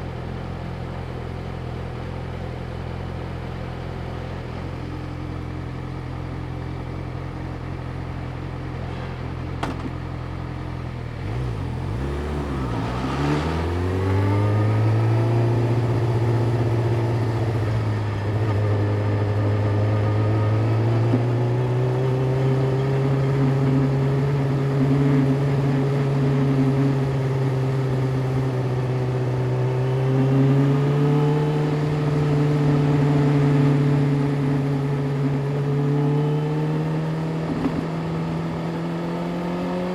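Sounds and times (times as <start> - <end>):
motorcycle engine idling: 0.0 - 11.8
motorcycle pulling away: 11.2 - 21.1.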